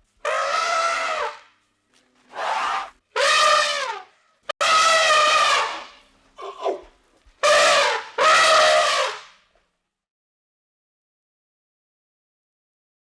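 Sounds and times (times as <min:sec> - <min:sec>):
animal trumpet-like calls: 0:00.2 - 0:01.5, 0:02.3 - 0:06.8, 0:07.4 - 0:09.4.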